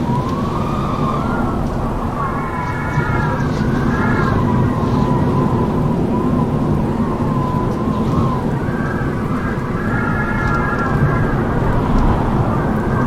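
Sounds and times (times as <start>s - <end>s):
strong wind howling: 0.0s - 13.0s.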